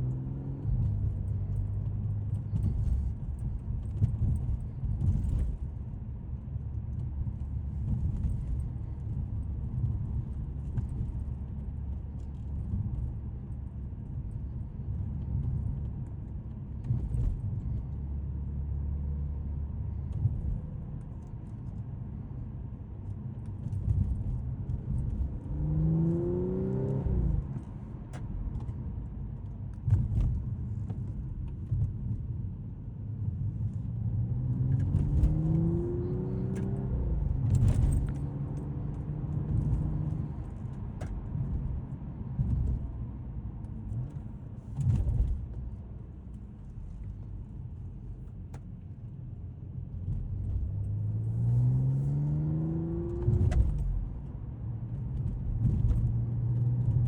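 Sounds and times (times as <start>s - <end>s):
car engine accelerating: 0.0s - 5.8s, 23.5s - 32.2s, 33.1s - 49.0s, 49.7s - 57.0s
low road rumble: 0.0s - 57.0s.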